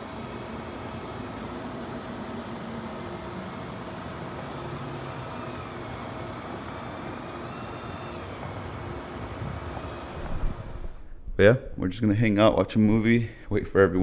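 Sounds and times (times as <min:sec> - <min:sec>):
steady mechanical noise: 0:00.0 - 0:11.2.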